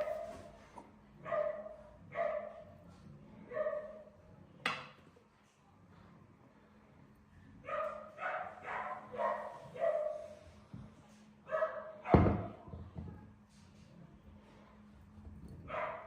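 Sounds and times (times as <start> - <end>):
dog barking: 1.2 - 2.7, 3.5 - 4.1, 7.6 - 10.4, 11.5 - 12.4, 15.7 - 16.0.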